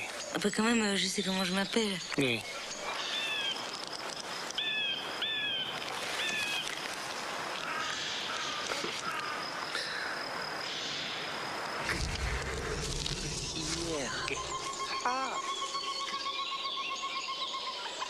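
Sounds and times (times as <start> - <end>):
outdoor hiss: 1.5 - 14.8
bird whistled calls: 13.4 - 18.0.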